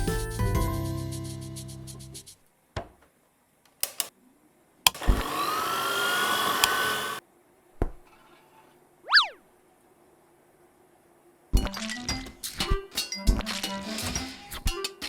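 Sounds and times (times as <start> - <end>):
electric mixer whirring: 4.9 - 7.2
cartoon click: 9.1 - 9.4
rising and falling whistle: 9.1 - 9.4.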